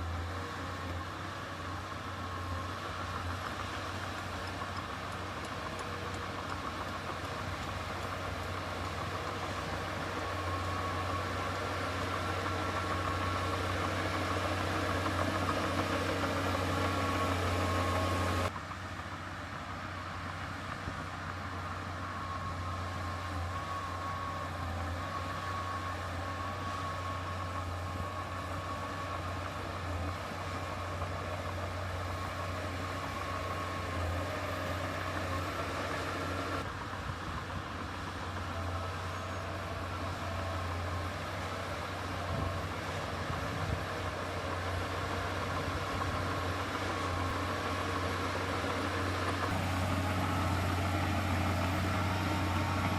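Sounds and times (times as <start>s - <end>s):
thin engine whine: 0.0s - 18.8s, 20.2s - 52.9s
heavy machinery diesel engine: 0.0s - 52.9s.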